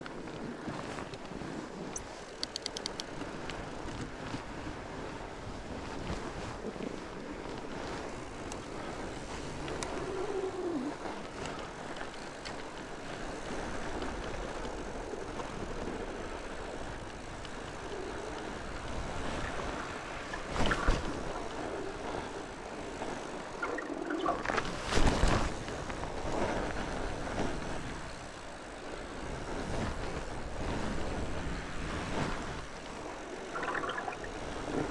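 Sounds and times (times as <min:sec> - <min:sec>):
bike clicks: 0:01.9 - 0:04.0
tyre and wind rushing: 0:13.1 - 0:28.4.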